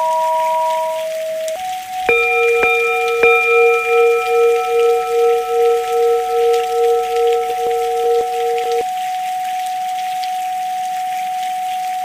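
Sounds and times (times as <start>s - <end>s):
soft rain-like hiss: 0.0s - 12.0s
steady sine tones: 1.6s - 8.9s.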